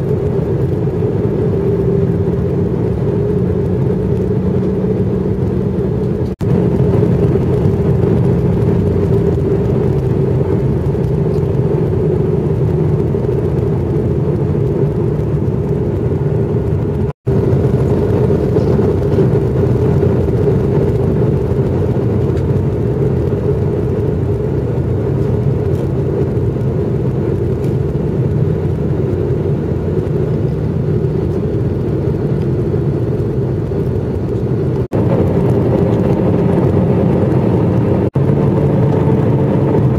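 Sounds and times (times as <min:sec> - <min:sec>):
jet engine hum: 0:00.0 - 0:39.9.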